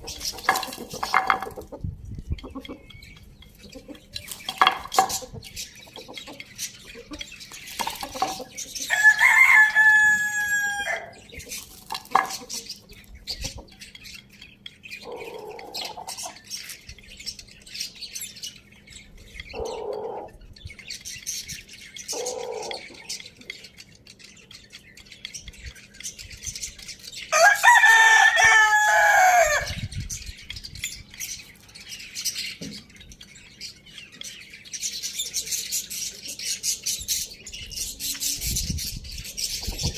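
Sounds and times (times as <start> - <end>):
small birds chirping: 0.0 - 39.9
soft clucks: 0.2 - 8.7
rooster crowing: 8.9 - 11.2, 27.3 - 29.8.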